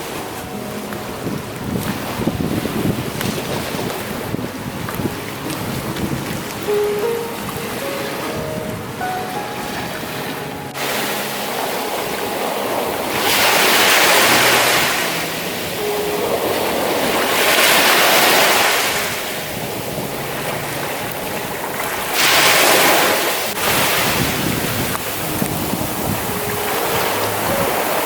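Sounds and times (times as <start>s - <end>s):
surf breaking: 0.0s - 28.0s
waves washing onto beach: 0.0s - 28.0s.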